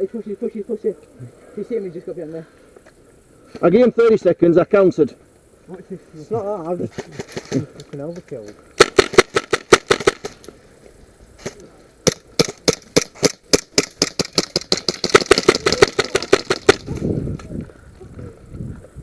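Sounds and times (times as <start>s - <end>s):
airsoft gun shots: 8.8s - 10.4s, 11.4s - 17.0s.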